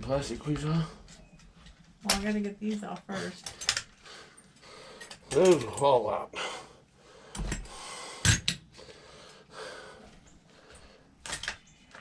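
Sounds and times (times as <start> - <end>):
hand tools clicking and knocking: 2.1 - 4.0, 4.9 - 6.0, 7.3 - 8.7, 11.2 - 12.0.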